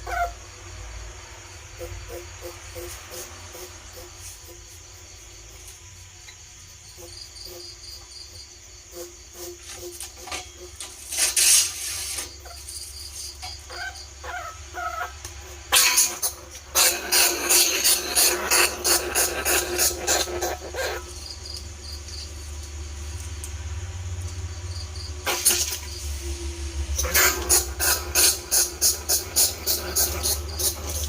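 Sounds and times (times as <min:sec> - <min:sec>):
rat squeaking: 0:08.9 - 0:22.4, 0:27.0 - 0:31.0
steady low hum: 0:11.8 - 0:31.0.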